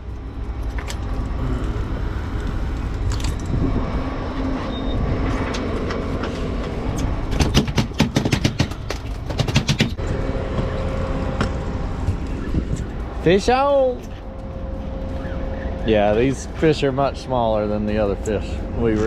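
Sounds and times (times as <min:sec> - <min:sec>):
boat engine rumble: 0:00.0 - 0:07.7, 0:08.8 - 0:19.0
sharp clicking and rattling: 0:05.4 - 0:10.0.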